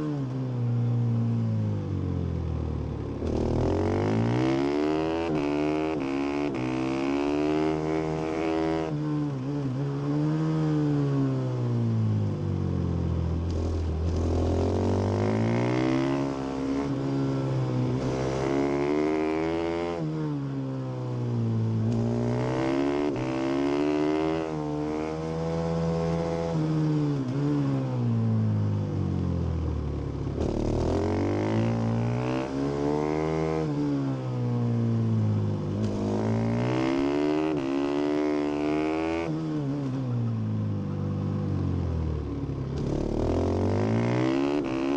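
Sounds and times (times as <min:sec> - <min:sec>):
motorcycle engine revving: 0:02.3 - 0:11.1, 0:13.0 - 0:20.5, 0:21.6 - 0:28.5, 0:29.4 - 0:44.9.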